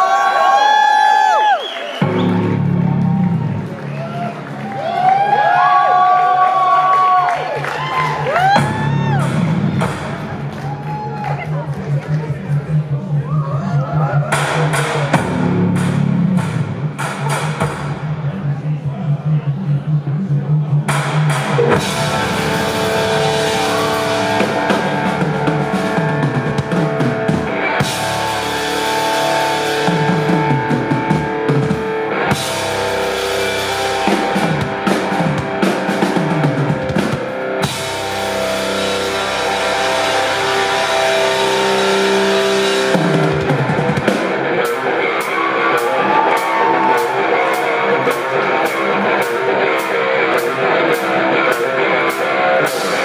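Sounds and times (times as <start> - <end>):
drums: 0.0 - 53.0
bass guitar: 2.0 - 53.0
electric guitar sustained notes: 21.6 - 53.0.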